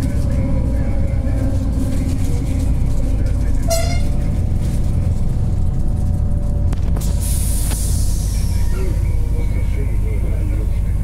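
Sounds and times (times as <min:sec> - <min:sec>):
train running low rumble: 0:00.0 - 0:11.0
train horn toot: 0:03.6 - 0:04.2.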